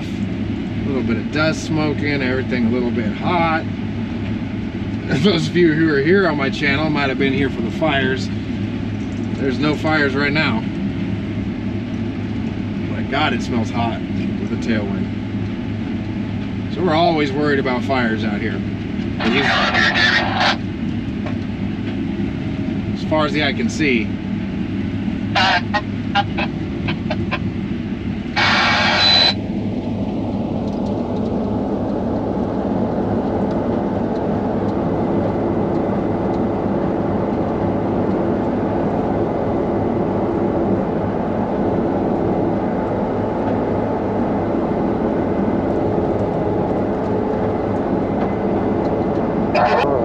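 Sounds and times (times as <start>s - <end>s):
combine harvester drone: 0.0s - 50.0s.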